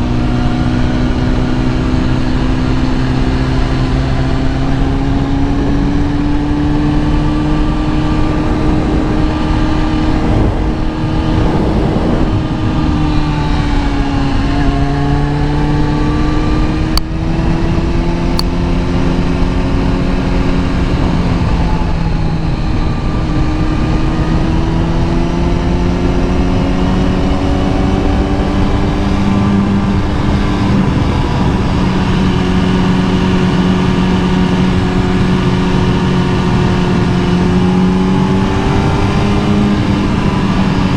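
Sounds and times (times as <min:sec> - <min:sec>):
motorcycle engine running: 0:00.0 - 0:40.9
rushing noise: 0:07.5 - 0:15.3.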